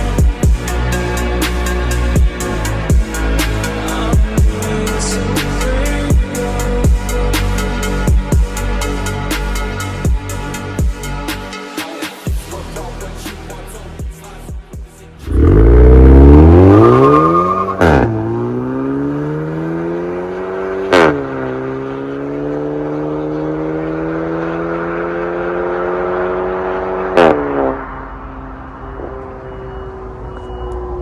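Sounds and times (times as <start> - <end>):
car engine accelerating hard: 15.2 - 31.0.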